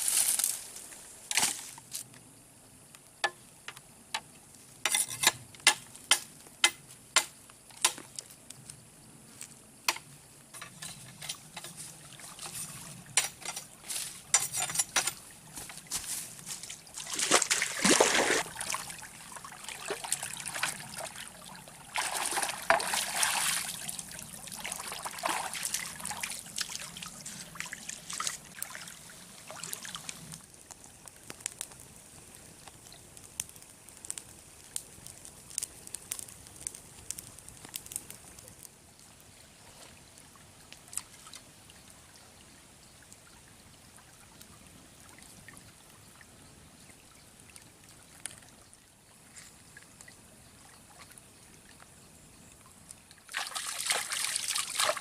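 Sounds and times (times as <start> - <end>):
water trickling and splashing: 10.6 - 35.3, 36.1 - 55.0.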